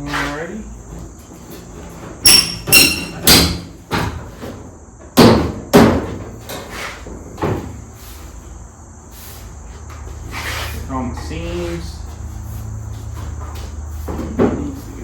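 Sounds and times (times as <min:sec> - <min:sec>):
sharp knocks on sheet metal: 0:02.2 - 0:04.2, 0:05.1 - 0:06.3.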